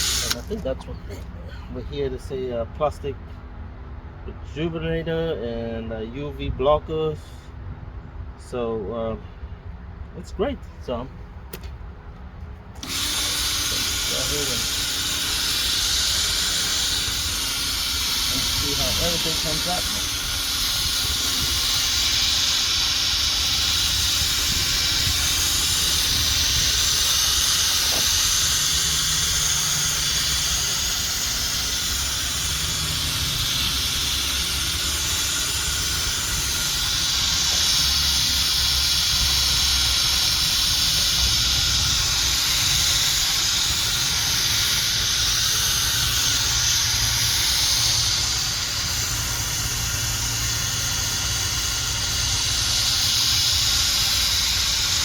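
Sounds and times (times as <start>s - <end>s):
buffing pad hissing: 0.0s - 1.3s, 12.8s - 55.0s
low motor rumble: 0.0s - 55.0s.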